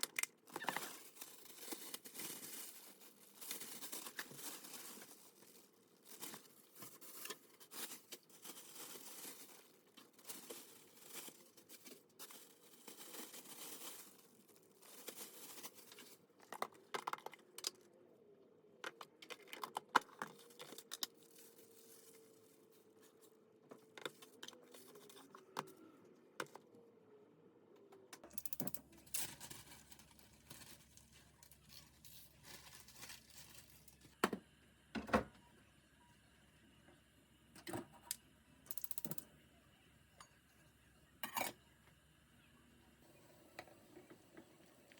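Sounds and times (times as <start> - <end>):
plastic or paper crinkling: 0.0 - 17.2, 19.4 - 23.3, 29.0 - 34.2.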